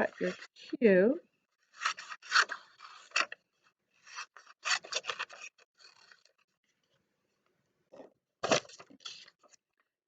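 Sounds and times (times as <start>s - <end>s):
scissors cutting paper: 1.7s - 3.4s, 4.1s - 6.3s.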